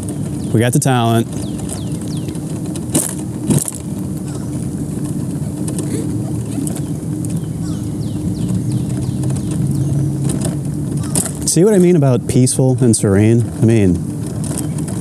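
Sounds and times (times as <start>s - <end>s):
birds chirping: 0.0s - 15.0s
steady low hum: 0.0s - 15.0s
sharp clicks: 1.1s - 12.0s.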